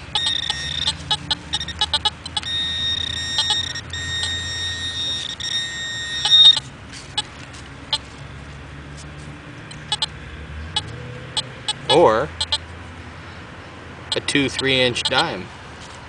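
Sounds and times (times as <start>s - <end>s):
metal detector high-pitched tone: 0.0s - 6.6s, 9.7s - 10.1s, 10.8s - 12.6s, 14.1s - 15.3s
metal detector short beeps: 0.0s - 7.3s, 9.7s - 10.1s, 10.8s - 12.6s, 14.1s - 15.3s.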